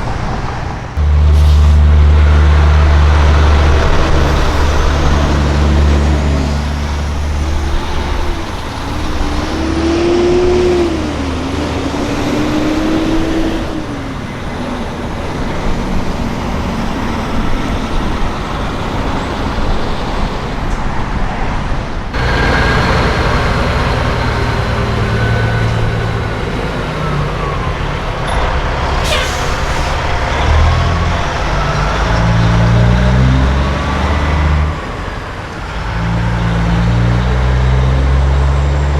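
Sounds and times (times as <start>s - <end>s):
diesel truck engines revving: 0.0s - 38.9s
brief sharp sound: 28.8s - 30.2s.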